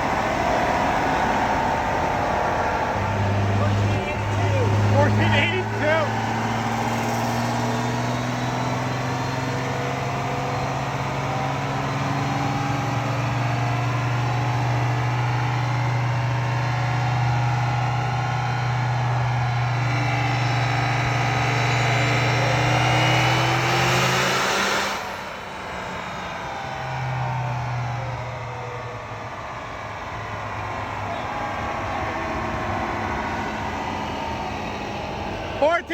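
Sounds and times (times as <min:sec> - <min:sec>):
turbo whine: 0:00.0 - 0:24.3, 0:28.9 - 0:35.9
diesel engine drone: 0:00.0 - 0:35.9.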